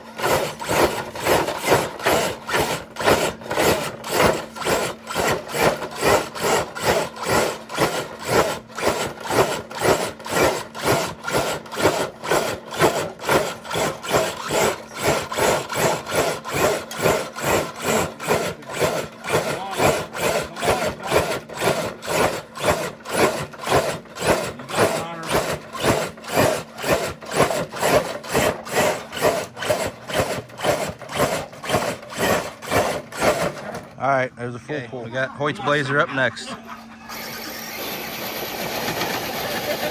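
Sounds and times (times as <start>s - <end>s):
sled scraping along ground: 35.5s - 39.9s.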